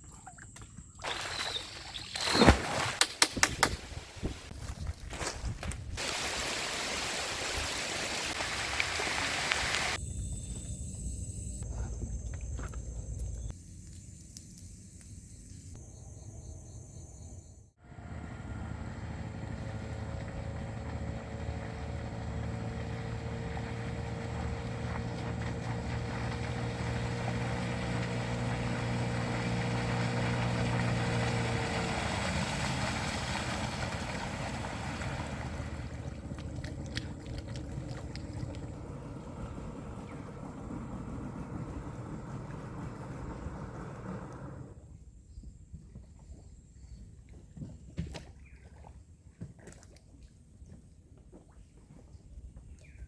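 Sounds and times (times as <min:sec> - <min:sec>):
sharp clicks: 0:03.0 - 0:03.8
motorboat engine running: 0:17.8 - 0:45.0.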